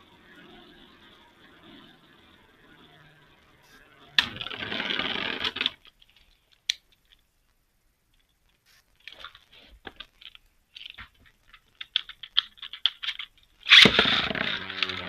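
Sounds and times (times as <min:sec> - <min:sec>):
spinning tops whirring and rattling: 0:00.0 - 0:05.9.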